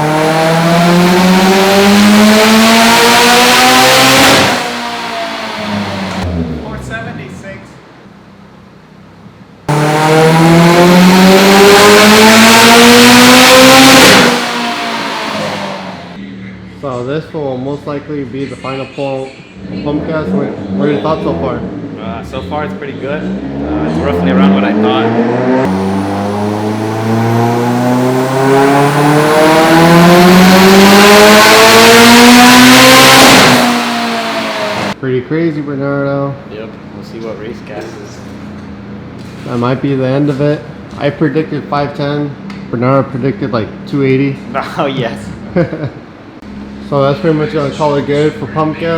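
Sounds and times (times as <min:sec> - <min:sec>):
turbocharged car engine at full throttle: 0:00.0 - 0:06.8, 0:09.7 - 0:16.2, 0:19.6 - 0:35.0.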